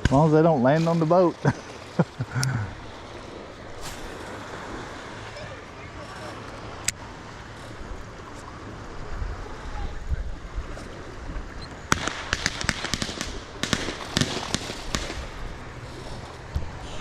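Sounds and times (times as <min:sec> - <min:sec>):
fireworks cracking and popping: 0:11.9 - 0:15.4.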